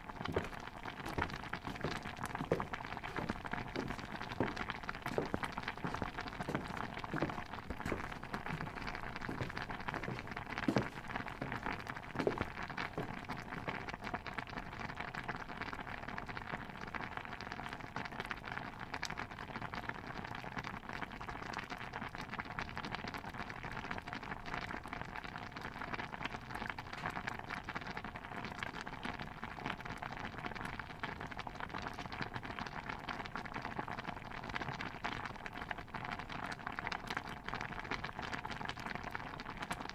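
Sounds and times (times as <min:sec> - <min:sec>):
stew bubbling in a pot: 0:00.0 - 0:39.9.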